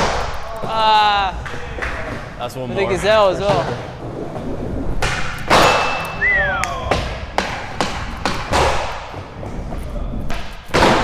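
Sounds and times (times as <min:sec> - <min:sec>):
skateboard landing impact: 0:00.0 - 0:02.4, 0:05.0 - 0:09.4, 0:10.4 - 0:11.0
skateboards knocking on floor: 0:00.0 - 0:11.0.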